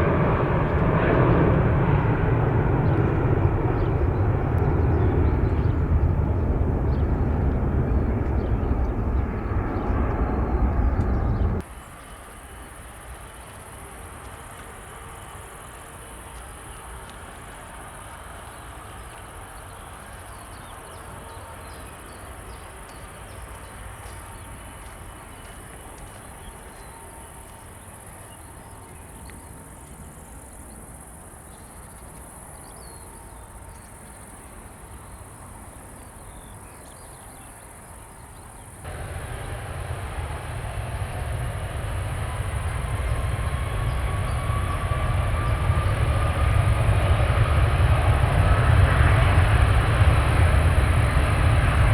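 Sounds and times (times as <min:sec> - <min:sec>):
faint low rumble: 0:00.0 - 0:11.6, 0:38.9 - 0:51.9
jet engine rumble: 0:00.0 - 0:13.2, 0:38.8 - 0:51.9
insects chirring: 0:21.6 - 0:51.9.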